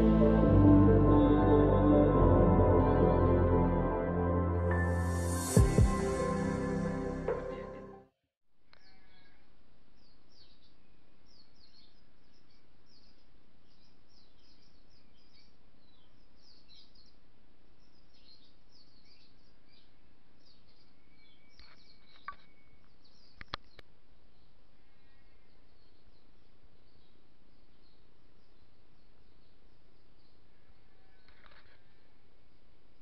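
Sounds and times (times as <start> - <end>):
small birds chirping: 10.0 - 32.7.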